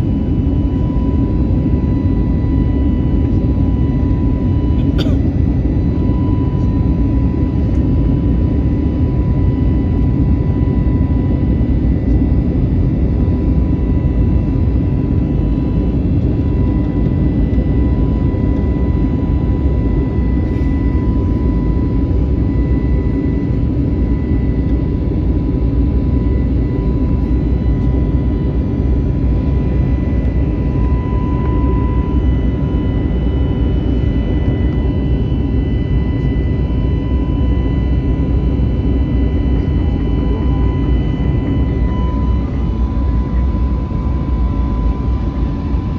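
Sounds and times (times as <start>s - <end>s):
airliner engine and air roar: 0.0s - 45.9s
steady high tone: 39.5s - 44.5s.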